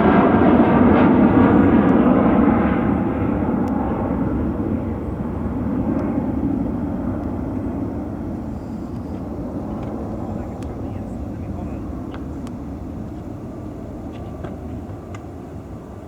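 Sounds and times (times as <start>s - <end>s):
jet airliner engine noise: 0.0s - 16.0s.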